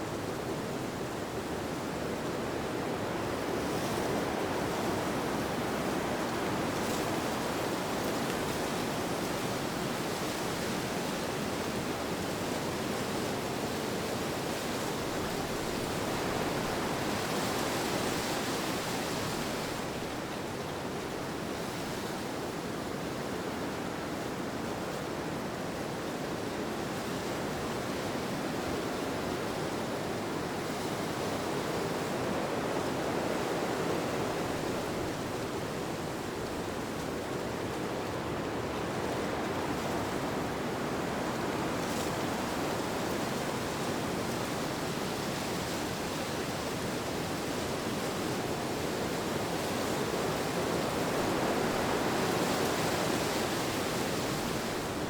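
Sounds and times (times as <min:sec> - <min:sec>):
rushing wind: 0:28.7 - 0:55.0.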